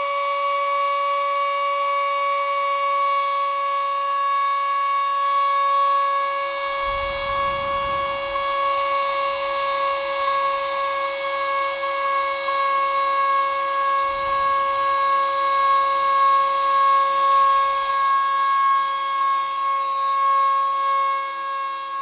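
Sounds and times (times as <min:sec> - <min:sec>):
stepper motors high whine: 0:05.5 - 0:18.0.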